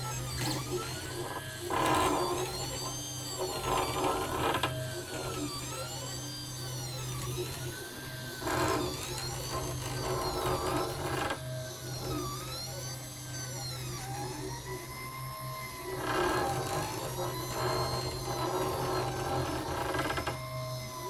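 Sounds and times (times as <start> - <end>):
stepper motors whining: 0.0 - 21.0
harsh rattling noise: 16.0 - 20.4.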